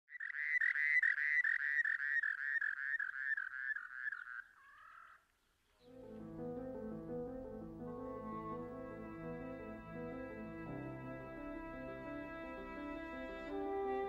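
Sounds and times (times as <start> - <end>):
music with low held tones: 5.9 - 14.0.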